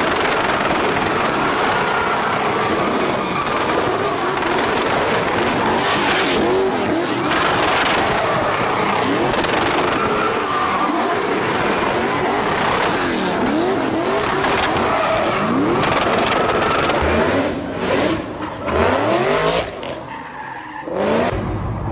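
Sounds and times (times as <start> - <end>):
car engines revving hard: 0.0 - 21.6.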